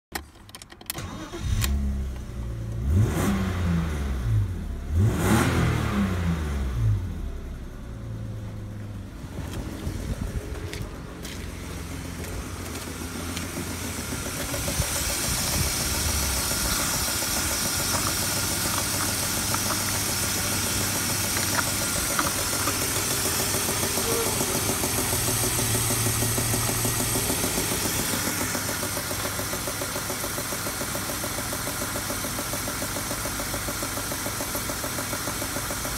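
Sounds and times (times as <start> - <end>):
car engine idling: 1.0 - 35.9.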